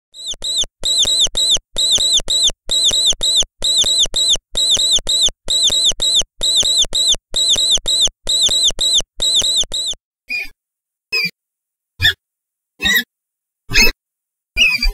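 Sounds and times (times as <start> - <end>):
mouse squeaking: 0.2 - 10.5, 13.7 - 13.9, 14.6 - 14.9.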